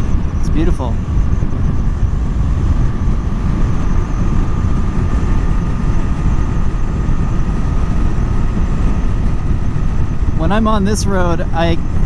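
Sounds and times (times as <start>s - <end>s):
faint steady whine: 0.0s - 12.0s
motorcycle engine cruising: 0.0s - 12.0s
wind rushing on microphone: 0.0s - 12.0s.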